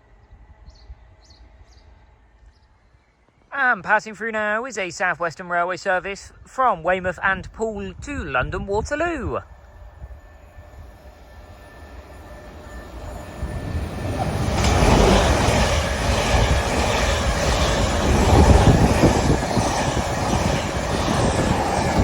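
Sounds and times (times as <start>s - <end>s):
train passing at speed: 0.0s - 3.5s, 9.1s - 22.0s.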